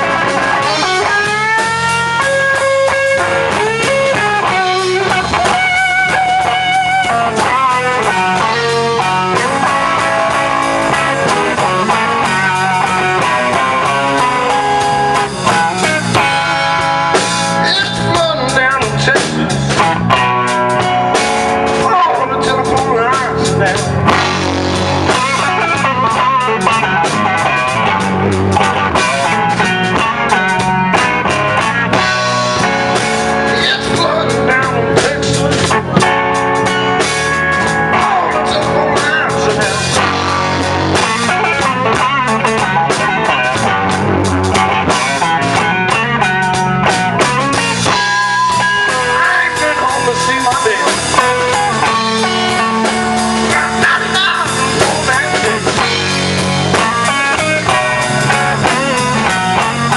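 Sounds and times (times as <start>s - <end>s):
blues guitar lines: 0.0s - 59.9s
drum kit and bass: 0.0s - 59.9s.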